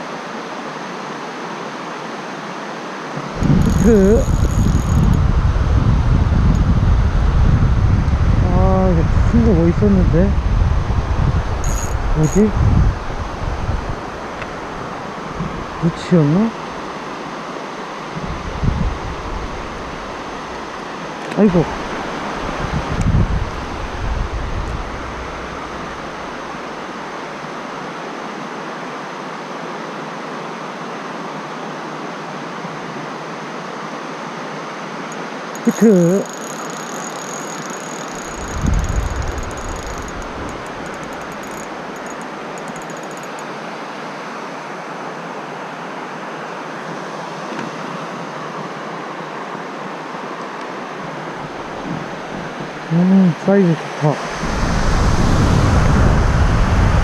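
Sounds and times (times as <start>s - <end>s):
stream water rushing: 0.0s - 7.3s, 10.9s - 57.0s
low rumbling on microphone: 3.3s - 14.1s, 21.6s - 27.0s
fine fast ticking: 3.4s - 5.2s, 11.6s - 12.5s, 35.6s - 43.5s.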